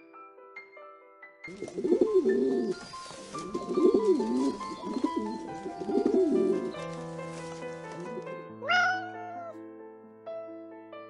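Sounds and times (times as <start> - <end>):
background music with held notes: 0.0 - 11.0
pigeon cooing: 1.5 - 9.5.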